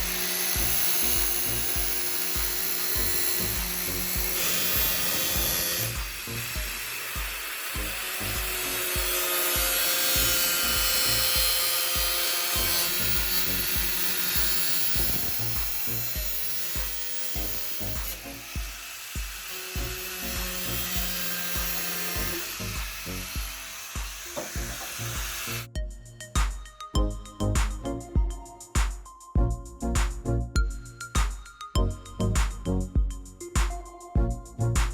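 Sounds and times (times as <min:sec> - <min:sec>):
hand tool rubbing wood: 0:00.0 - 0:25.7
background music with beat: 0:00.0 - 0:34.9.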